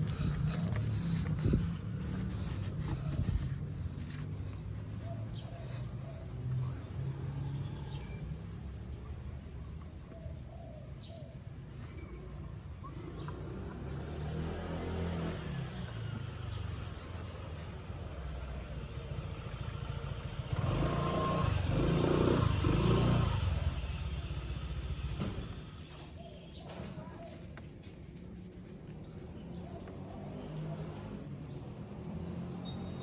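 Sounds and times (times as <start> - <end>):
vehicle engine humming: 0.0 - 9.4, 12.9 - 26.5.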